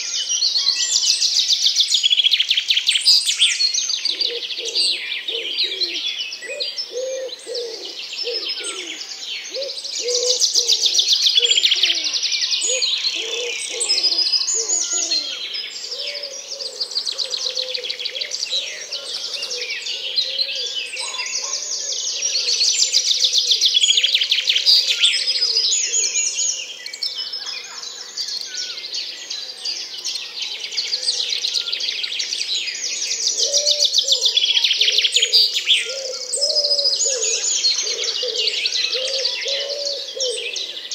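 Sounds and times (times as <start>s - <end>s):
small birds chirping and trilling: 0.0s - 40.9s
low cooing calls: 4.1s - 22.6s, 33.3s - 40.8s.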